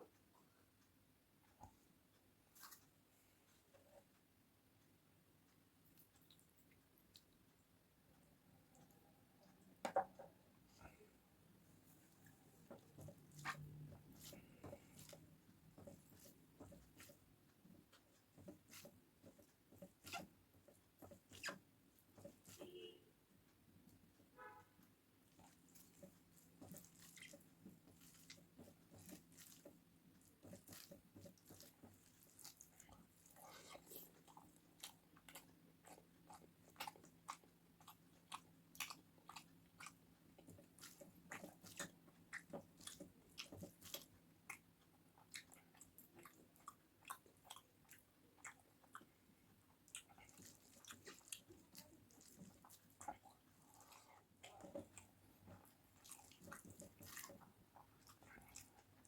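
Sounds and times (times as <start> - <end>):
person chewing crunchy food: 25.3 - 59.0.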